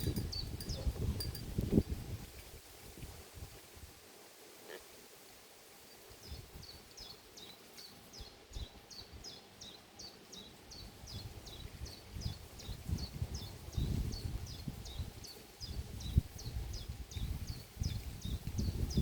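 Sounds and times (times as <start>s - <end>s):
small bird chirping: 0.0s - 1.5s.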